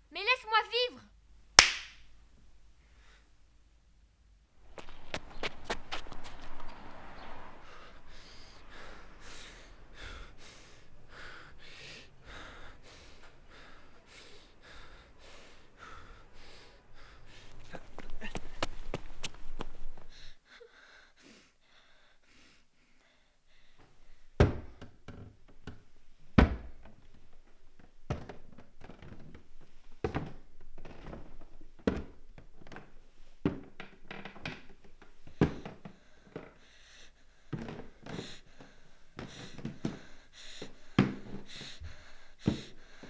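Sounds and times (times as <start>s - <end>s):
heavy footsteps climbing stairs: 23.8s - 36.6s, 37.5s - 43.0s.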